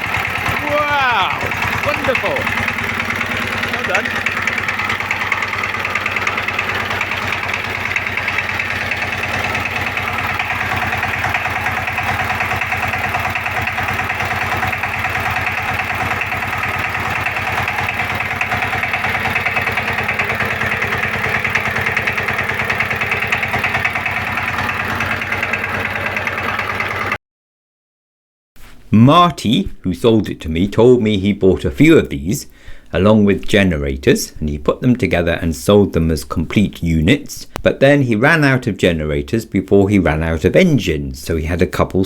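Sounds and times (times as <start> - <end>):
diesel engine running: 0.0 - 27.2.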